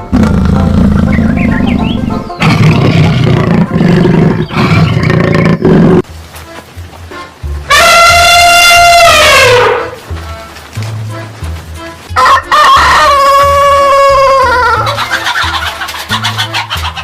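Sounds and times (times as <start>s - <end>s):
lion roaring: 2.4s - 6.0s.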